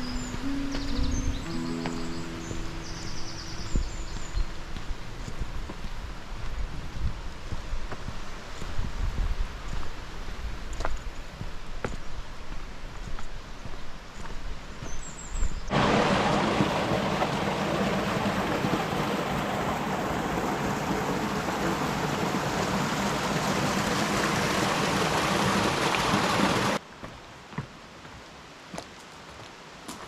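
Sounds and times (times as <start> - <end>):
stream water rushing: 0.0 - 6.5, 15.7 - 30.0.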